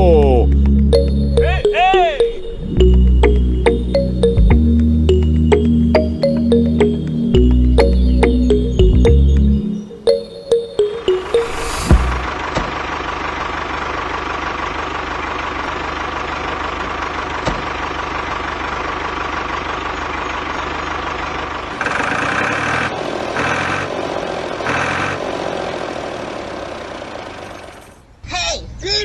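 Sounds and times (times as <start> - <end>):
mini tractor engine drone: 12.3 - 28.0.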